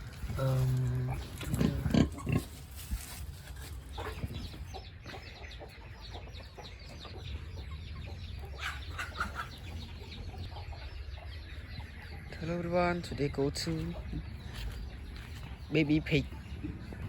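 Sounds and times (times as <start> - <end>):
pigs grunting: 0.0 - 2.8
high chirping calls: 3.9 - 17.0.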